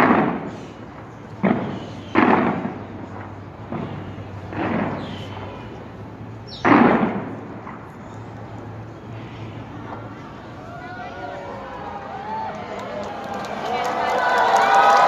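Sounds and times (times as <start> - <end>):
fireworks booming: 0.0 - 8.1.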